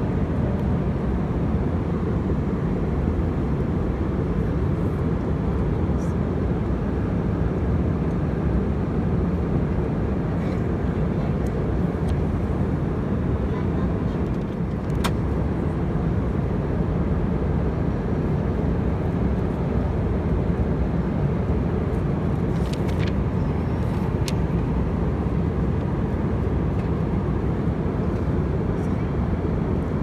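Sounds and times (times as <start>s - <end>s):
airplane cabin rumble: 9.5s - 30.0s.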